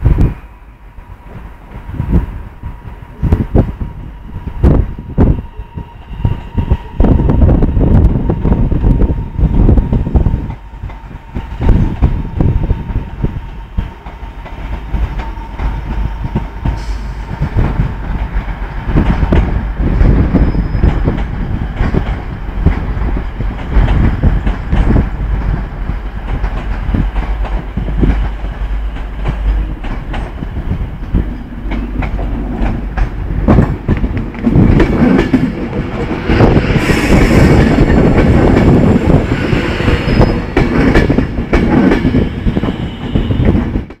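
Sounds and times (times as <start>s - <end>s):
train wheels clattering: 13.3s - 44.0s
faint wheel squeal: 20.4s - 20.9s.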